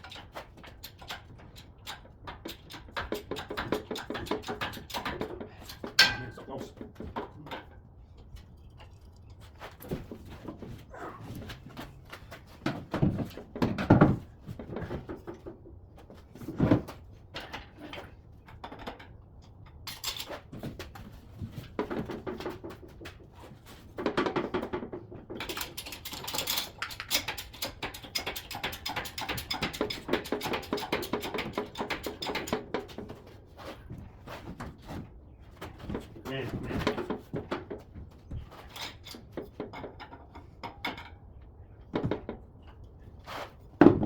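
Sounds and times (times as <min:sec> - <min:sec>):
tool bin clattering and rattling: 0:09.7 - 0:19.0, 0:41.8 - 0:44.0.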